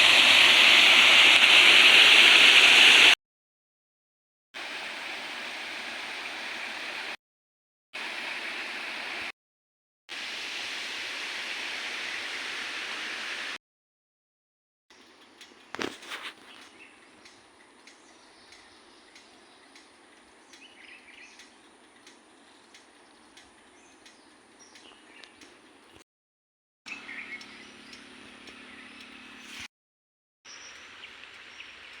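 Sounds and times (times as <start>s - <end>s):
steady outdoor hiss: 0.0s - 3.2s, 4.6s - 7.2s, 8.0s - 9.3s, 10.1s - 13.6s, 15.0s - 26.0s, 26.9s - 29.7s, 30.5s - 32.0s
birds chirping faintly: 14.9s - 26.0s, 26.9s - 29.4s.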